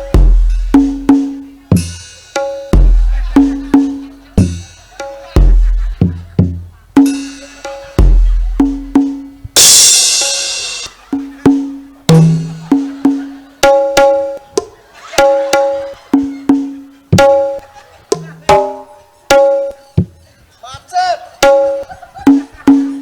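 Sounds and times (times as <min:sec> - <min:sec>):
hand drums playing: 0:00.0 - 0:20.2, 0:21.4 - 0:23.0
cymbal crash: 0:07.1 - 0:08.7, 0:09.6 - 0:11.1.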